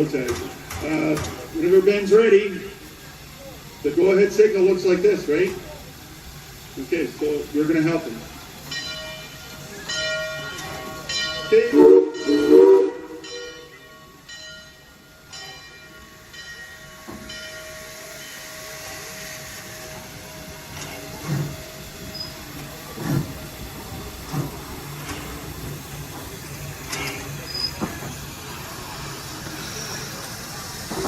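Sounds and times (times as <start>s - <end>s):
steam locomotive hissing steam: 0.0s - 31.0s
locomotive exhaust chuffs: 16.2s - 31.0s.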